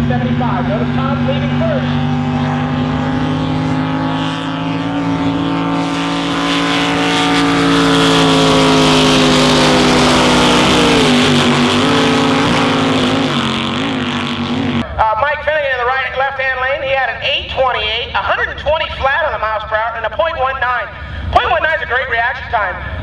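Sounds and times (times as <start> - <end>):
racing boat engines: 0.0 - 15.0.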